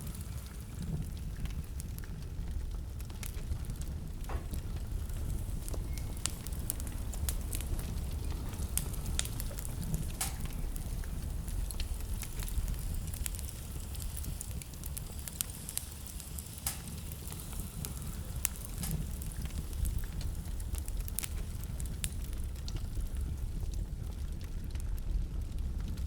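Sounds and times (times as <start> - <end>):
wood fire crackling and popping: 0.0 - 26.0
low rumble: 0.3 - 14.0.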